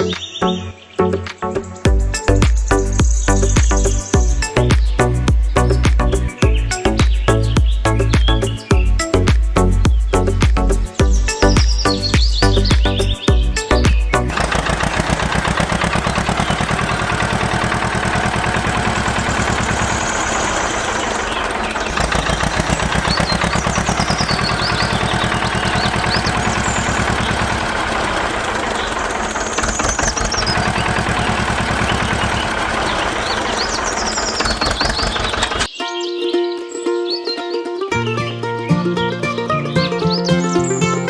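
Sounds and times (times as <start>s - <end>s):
high chirps: 0.0s - 14.5s, 33.5s - 41.0s
small engine pulsing: 14.3s - 35.7s.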